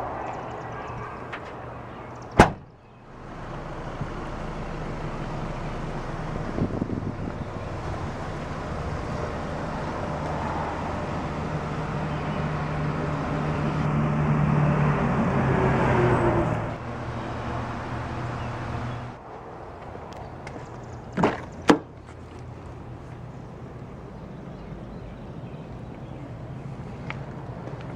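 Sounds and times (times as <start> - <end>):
rushing noise: 0.0 - 1.9, 6.0 - 20.5
car engine idling: 0.0 - 14.4.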